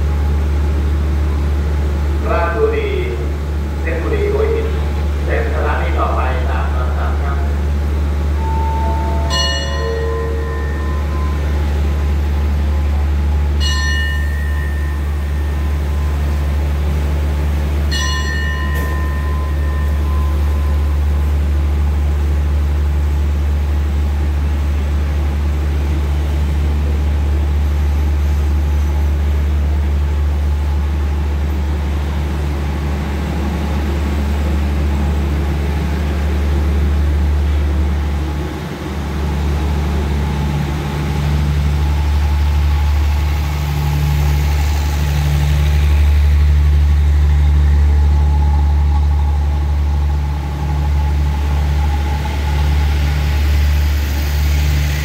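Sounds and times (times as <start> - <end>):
train engine hum: 0.0 - 55.0
bell ringing: 8.4 - 11.8, 13.6 - 16.4, 17.9 - 21.1.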